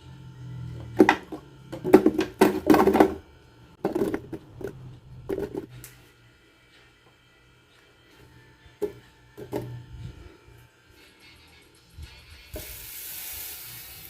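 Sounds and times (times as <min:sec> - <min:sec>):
knocks and clattering handling: 0:00.9 - 0:03.2, 0:03.8 - 0:05.7, 0:08.8 - 0:09.8.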